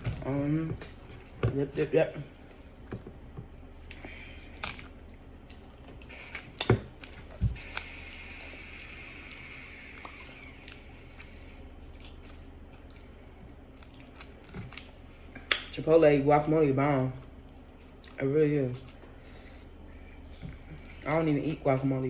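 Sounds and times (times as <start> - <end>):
person chewing food: 2.3 - 15.7, 17.2 - 18.2, 18.8 - 21.2.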